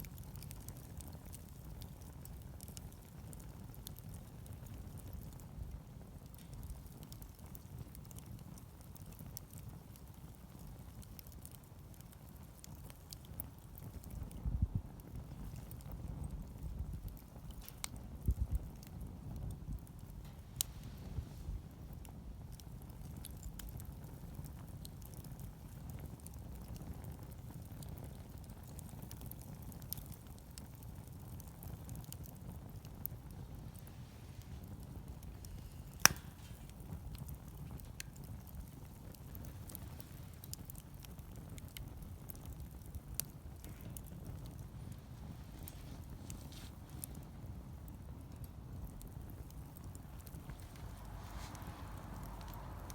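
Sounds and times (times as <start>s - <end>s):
campfire crackling and popping: 0.0s - 52.9s
low rumble: 50.0s - 52.9s.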